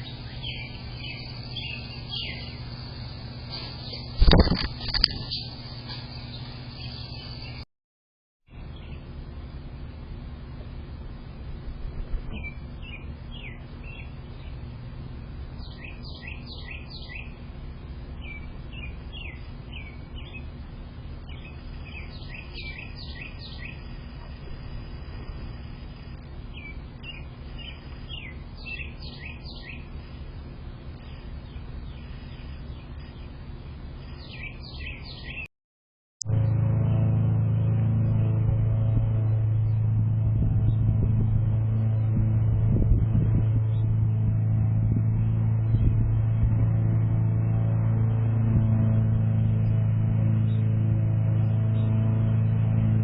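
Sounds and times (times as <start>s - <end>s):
low background rumble: 0.0s - 7.6s, 8.5s - 35.5s, 36.3s - 53.0s
songbird singing: 0.0s - 7.6s, 8.5s - 9.7s, 11.0s - 35.5s.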